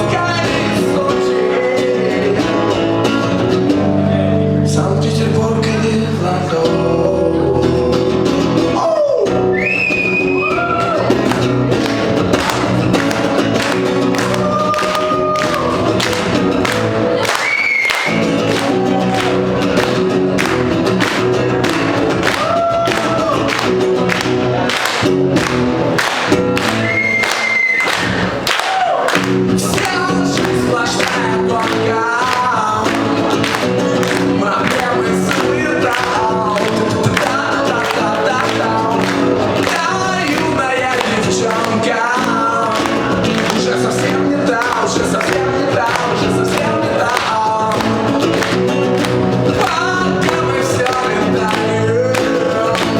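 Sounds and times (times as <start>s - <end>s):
strummed acoustic guitar: 0.0s - 28.5s, 29.2s - 52.9s
person singing long notes: 29.5s - 48.6s.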